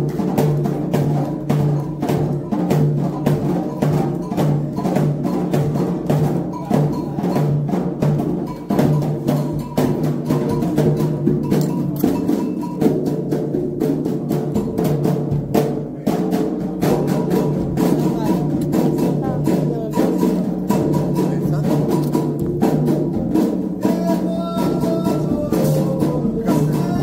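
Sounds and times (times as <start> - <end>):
hand drums playing fast rhythm: 0.0 - 27.0
struck bell keeping time: 1.6 - 13.2.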